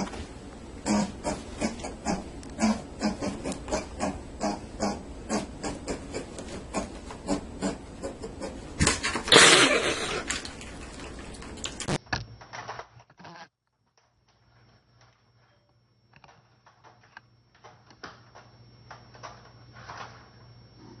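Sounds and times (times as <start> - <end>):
animal grunting: 0.8 - 8.7.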